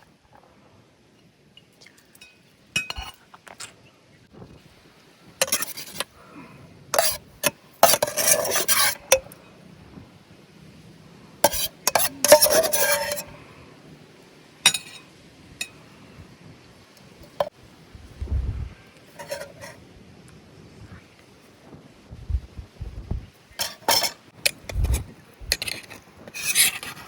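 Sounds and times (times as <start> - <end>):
metal clinking on a pot: 2.2 - 3.2, 5.4 - 6.1, 11.5 - 13.3, 14.7 - 15.8, 23.6 - 24.6
metal utensil scraping a pot: 5.4 - 6.2, 7.0 - 9.3, 11.4 - 13.4, 19.1 - 19.8, 23.5 - 27.0.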